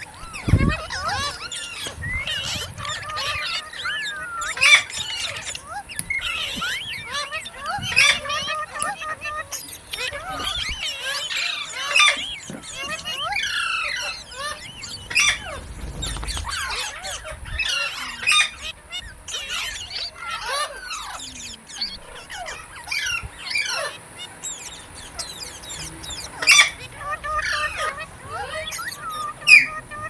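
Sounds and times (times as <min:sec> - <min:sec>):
parakeet chattering and squawking: 0:00.0 - 0:30.0
parakeet screeches: 0:00.0 - 0:30.0.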